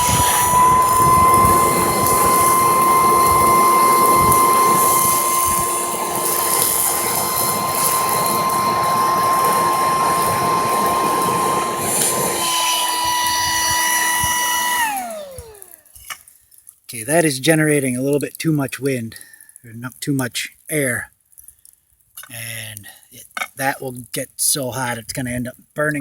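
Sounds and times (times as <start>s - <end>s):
air rushing into fire: 0.0s - 15.8s
electric air pump whining: 0.0s - 16.2s.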